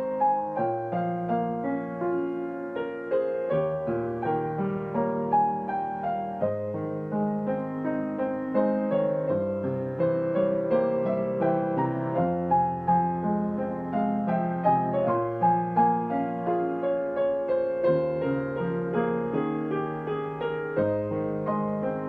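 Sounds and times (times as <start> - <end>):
digital piano melody: 0.0 - 22.0.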